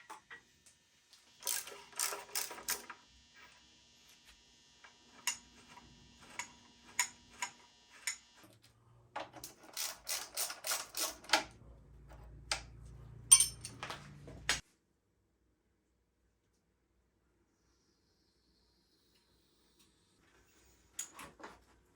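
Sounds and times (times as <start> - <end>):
tools and metal parts clinking: 1.4 - 2.9, 9.2 - 11.5, 13.2 - 14.5.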